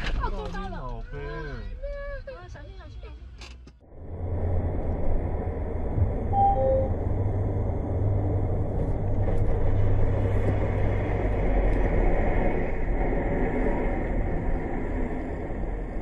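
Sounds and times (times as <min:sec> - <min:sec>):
vehicle engine and road noise: 0:03.2 - 0:16.0
two-note beep: 0:06.4 - 0:06.9.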